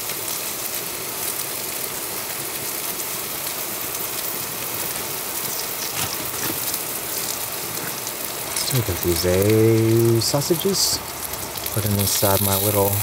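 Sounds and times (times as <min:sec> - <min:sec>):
sausages sizzling in oil: 0:00.0 - 0:13.0
oil popping: 0:04.0 - 0:13.0.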